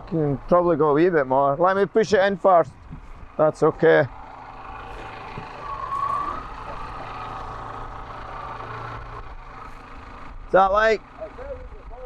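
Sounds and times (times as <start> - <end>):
sawmill engine running with whine: 3.3 - 11.4.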